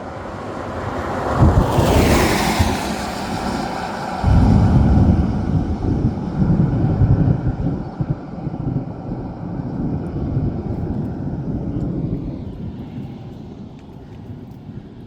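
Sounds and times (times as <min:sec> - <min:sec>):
rolling thunder: 0:01.3 - 0:13.0.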